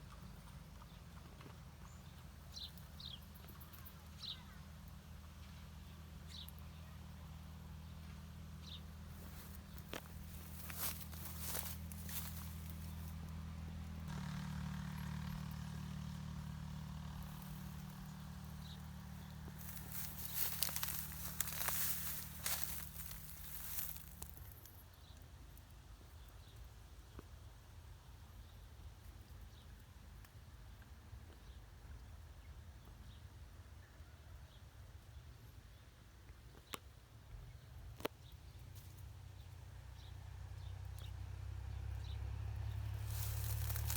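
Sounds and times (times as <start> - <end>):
leafy branches rustling: 9.1 - 13.2, 17.2 - 24.6, 42.9 - 43.9.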